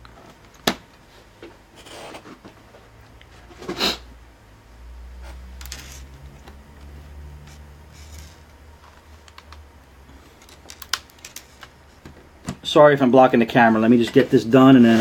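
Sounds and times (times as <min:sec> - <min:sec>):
low steady hum: 0:00.0 - 0:15.0
plastic laptop parts clicking: 0:10.4 - 0:11.7.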